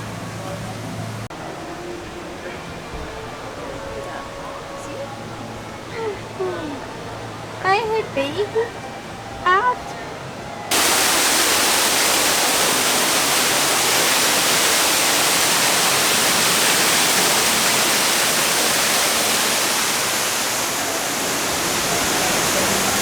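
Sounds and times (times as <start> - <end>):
falling water rushing: 10.7 - 23.0.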